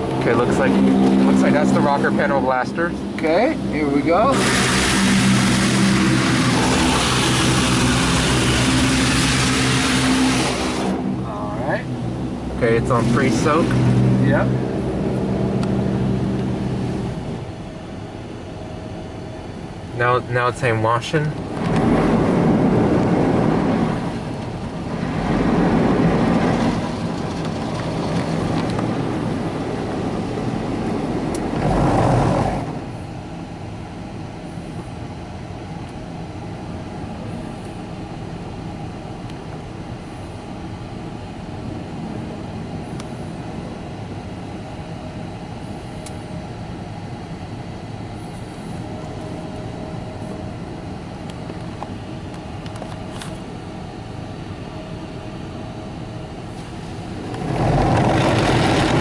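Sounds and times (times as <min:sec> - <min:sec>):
car wash machinery running: 0:00.0 - 0:59.0
car wash spray: 0:04.2 - 0:11.2.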